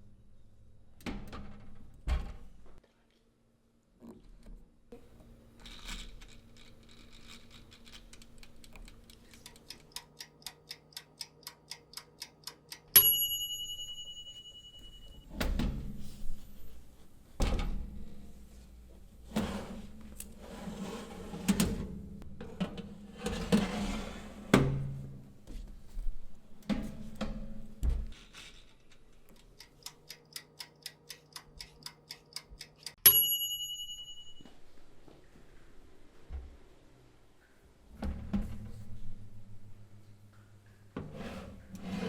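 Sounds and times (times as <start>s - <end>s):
kitchen timer clicking: 8.2s - 14.4s, 29.3s - 34.1s
timer bell ding: 13.0s - 15.3s, 33.0s - 34.6s.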